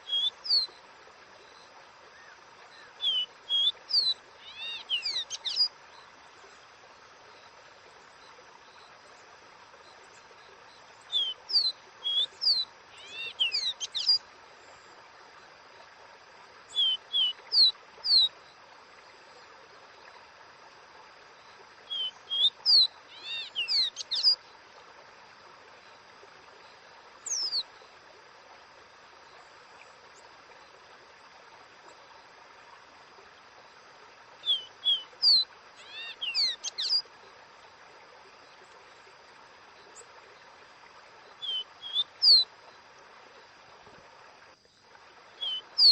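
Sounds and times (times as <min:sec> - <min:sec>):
bird whistling song: 0:00.0 - 0:00.7, 0:02.8 - 0:05.7, 0:11.1 - 0:14.2, 0:16.7 - 0:18.3, 0:21.9 - 0:24.4, 0:27.2 - 0:27.6, 0:34.4 - 0:37.0, 0:41.4 - 0:42.5, 0:45.4 - 0:45.9
background hiss: 0:00.0 - 0:45.9.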